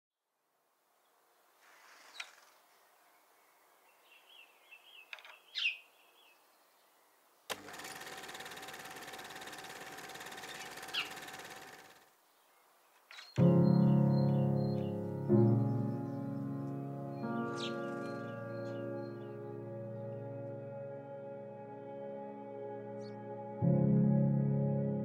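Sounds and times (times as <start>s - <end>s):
bird chirps: 1.7s - 7.3s, 10.4s - 11.6s, 12.2s - 19.6s
bird downward call: 10.4s - 11.5s.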